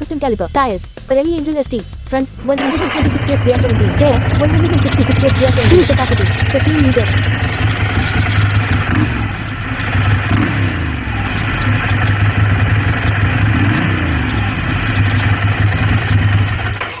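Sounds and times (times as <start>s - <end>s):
motorcycle engine idling: 2.4s - 17.0s.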